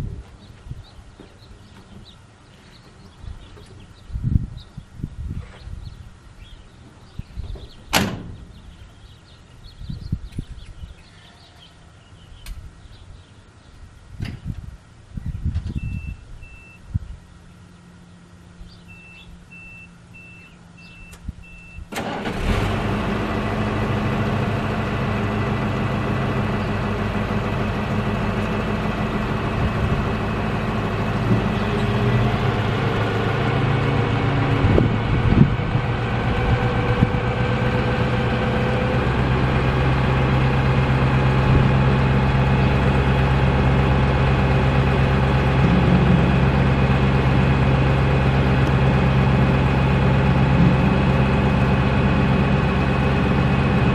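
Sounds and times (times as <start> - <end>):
electronic warning beeps: 15.8 - 16.8, 18.9 - 21.9
diesel engine starting and idling: 18.7 - 53.9.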